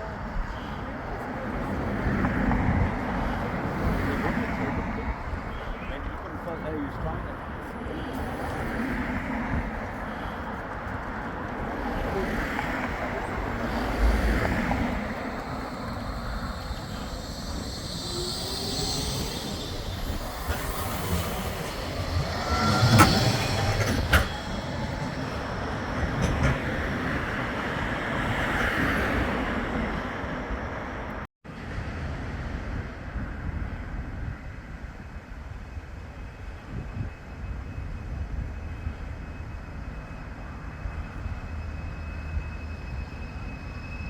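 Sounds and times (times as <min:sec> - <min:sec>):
tram running on rails: 0:00.0 - 0:44.0
sharp rail clacks: 0:20.1 - 0:25.4.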